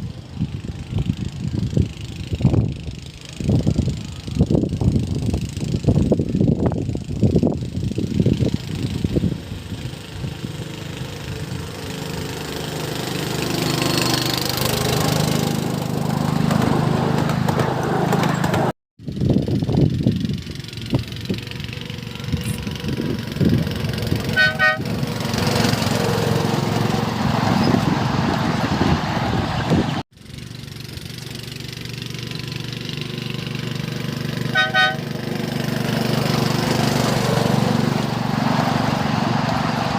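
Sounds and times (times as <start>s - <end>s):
miniature locomotive engine running: 0.0s - 27.1s, 30.2s - 38.0s
short horn toot: 24.3s - 24.9s, 34.5s - 35.1s.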